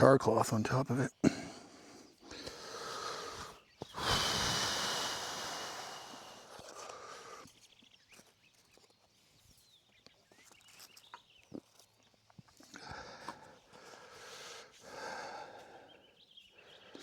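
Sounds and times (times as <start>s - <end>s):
breath blown onto ember: 2.3s - 7.4s.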